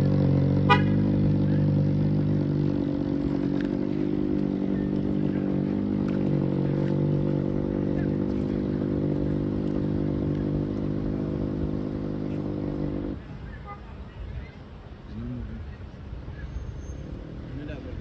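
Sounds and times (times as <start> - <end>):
engine running steadily: 0.0 - 13.5.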